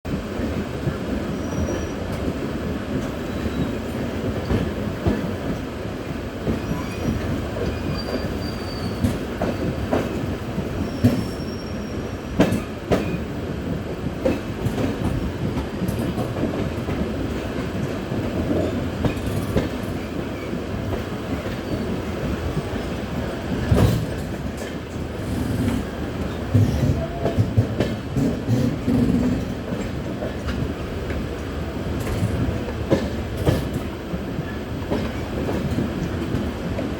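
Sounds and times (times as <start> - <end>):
train rumbling on rails: 0.0 - 36.9
faint wheel squeals: 6.6 - 9.6, 10.8 - 12.1
wheels clacking over rail joints: 13.9 - 22.9, 23.5 - 36.9.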